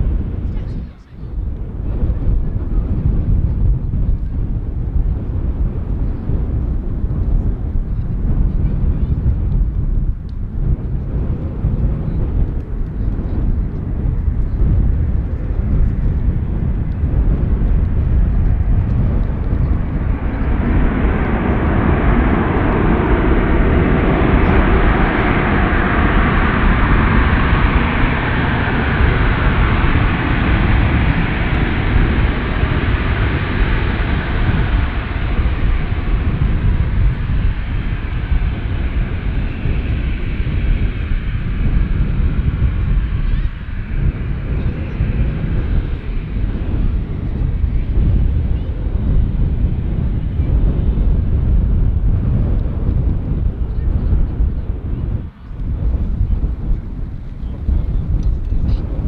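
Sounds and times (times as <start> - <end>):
airliner engines passing by: 0.0 - 59.0
steady low rumble: 0.0 - 59.0.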